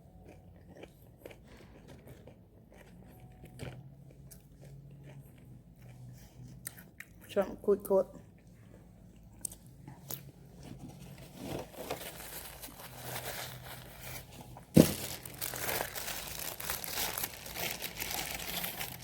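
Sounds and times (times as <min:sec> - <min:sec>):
paper wrapping crinkling: 0:10.6 - 0:19.0.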